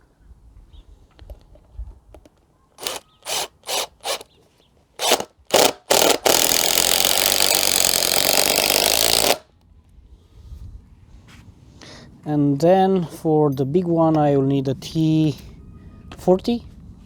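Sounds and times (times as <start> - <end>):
impact driver driving screw into wood: 2.8 - 4.3, 5.0 - 9.4.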